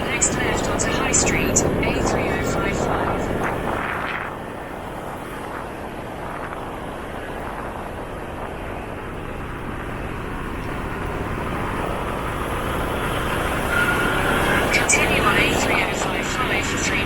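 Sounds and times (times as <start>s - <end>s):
motorcycle engine and road rumble: 2.5s - 14.9s.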